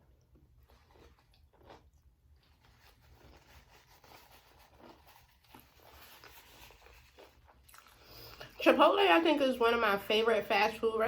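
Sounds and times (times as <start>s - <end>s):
chewing and biting food: 0.2s - 8.5s.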